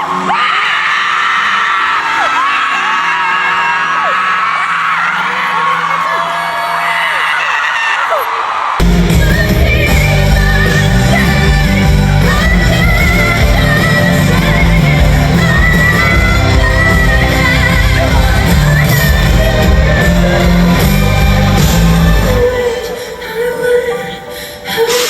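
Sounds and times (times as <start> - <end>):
crowd shouting: 0.0 - 8.9
live pop band playing: 8.8 - 25.0
high vocal singing: 9.0 - 25.0.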